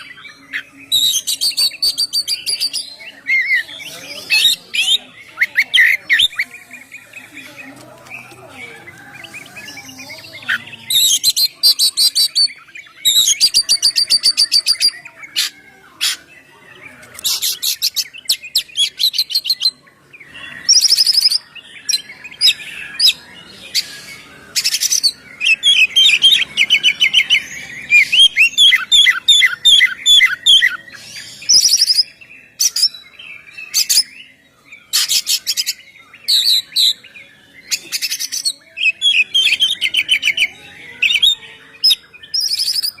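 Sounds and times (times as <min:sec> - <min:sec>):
magpie-robin singing: 0:00.0 - 0:43.0.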